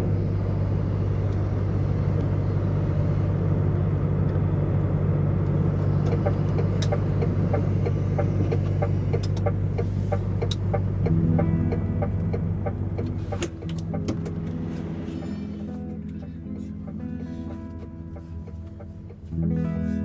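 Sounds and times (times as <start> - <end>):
truck engine droning: 0.0 - 20.0
regular ticking: 5.4 - 15.0, 15.6 - 19.7
music: 9.4 - 20.0.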